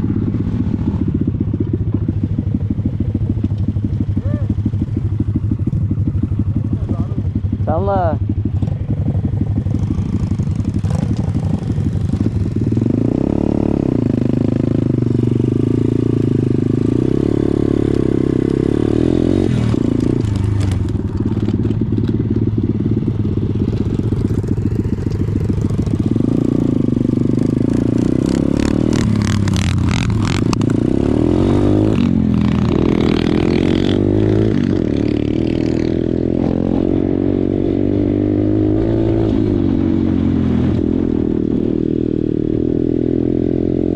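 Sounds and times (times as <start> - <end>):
motorbike engine revving: 0.0 - 43.9.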